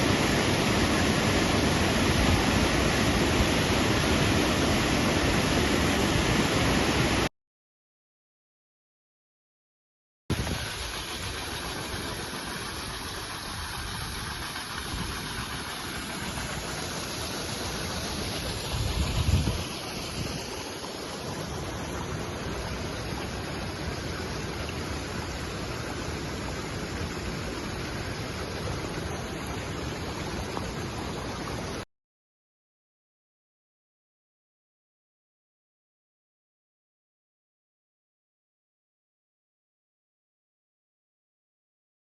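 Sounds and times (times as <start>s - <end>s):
waterfall roaring: 0.0s - 7.3s, 10.3s - 31.8s.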